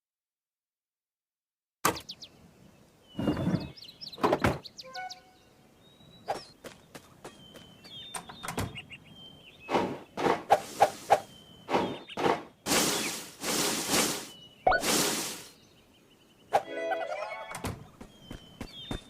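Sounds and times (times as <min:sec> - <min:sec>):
cartoon knocks and thuds: 0:09.7 - 0:10.6, 0:11.7 - 0:12.6, 0:17.5 - 0:19.0
high cartoon chirps: 0:12.0 - 0:15.6, 0:16.5 - 0:17.9.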